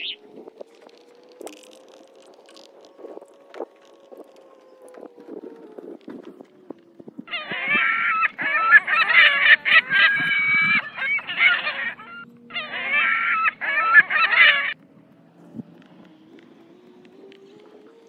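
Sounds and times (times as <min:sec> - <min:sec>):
birds calling: 0:00.0 - 0:00.3, 0:07.3 - 0:18.0.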